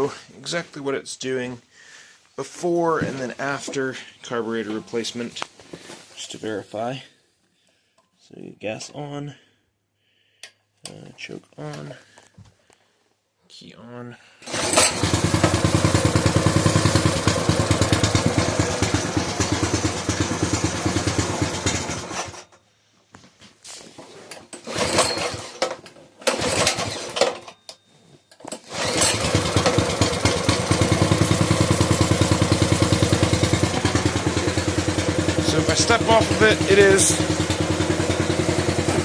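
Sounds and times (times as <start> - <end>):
engine sputtering: 14.5 - 22.5, 24.6 - 25.7, 26.3 - 27.3, 28.7 - 39.0
small engine running: 14.5 - 22.5, 24.6 - 25.7, 26.3 - 27.4, 28.7 - 39.0.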